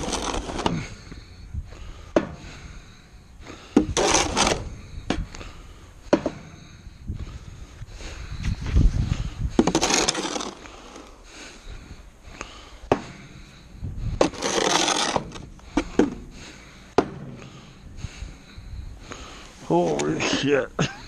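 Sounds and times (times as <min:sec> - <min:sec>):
snow shovel scraping snow: 0:00.0 - 0:01.0, 0:03.7 - 0:04.7, 0:09.6 - 0:11.2, 0:14.2 - 0:15.5.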